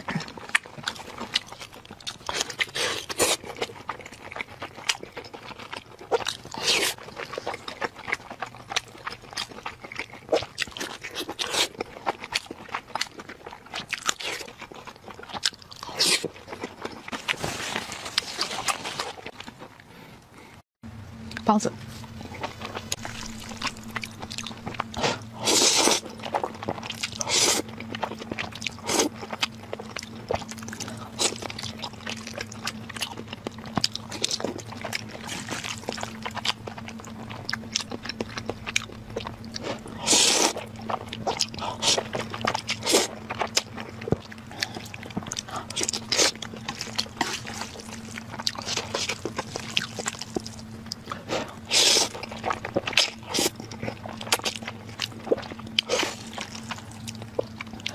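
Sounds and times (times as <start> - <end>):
person crunching and chewing food: 0.0 - 20.6, 21.3 - 57.9
steady low hum: 0.0 - 57.9.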